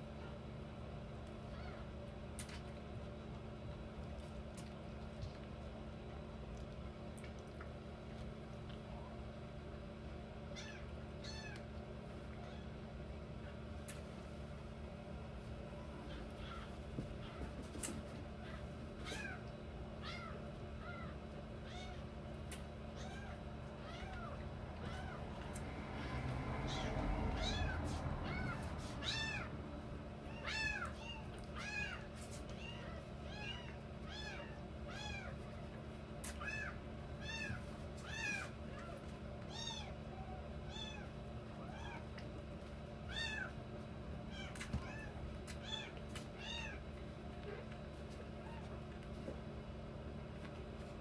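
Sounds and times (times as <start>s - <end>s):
kittens mewing: 15.8s - 17.6s, 22.9s - 29.5s, 30.2s - 35.5s.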